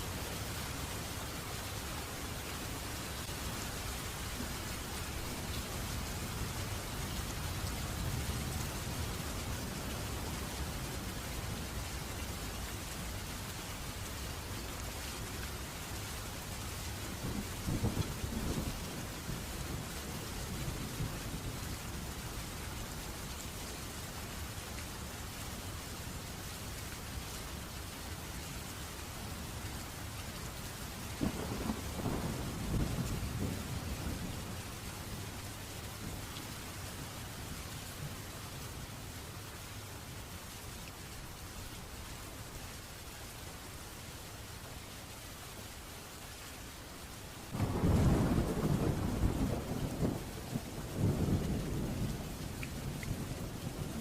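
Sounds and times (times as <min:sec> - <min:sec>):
rain falling: 0:00.0 - 0:54.0
thunder rumble: 0:47.6 - 0:54.0.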